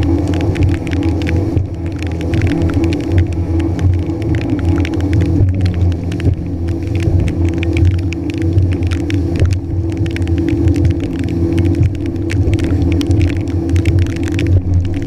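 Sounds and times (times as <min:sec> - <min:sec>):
jet ski engine drone: 0:00.0 - 0:15.0
sharp crackles: 0:00.0 - 0:15.0.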